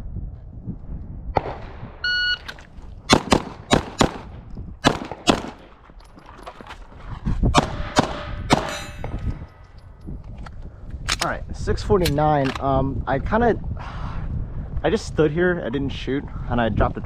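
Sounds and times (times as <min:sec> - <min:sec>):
pistol shots: 0:03.1 - 0:05.8, 0:07.6 - 0:09.2.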